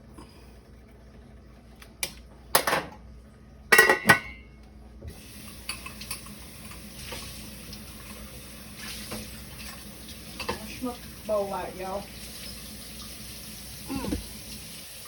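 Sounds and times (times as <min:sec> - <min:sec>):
kitchenware clattering: 0:03.7 - 0:04.5, 0:05.4 - 0:07.3, 0:09.0 - 0:11.0
kitchen tap running: 0:05.0 - 0:15.0.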